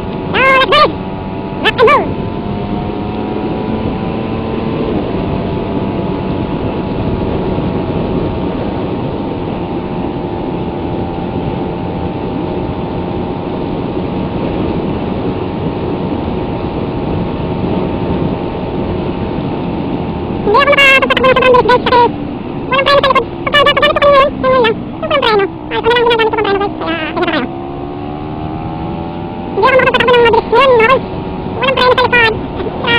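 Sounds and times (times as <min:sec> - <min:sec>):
motorcycle engine cruising: 0:00.0 - 0:32.9
road noise: 0:00.0 - 0:32.9
wind noise: 0:00.0 - 0:32.9.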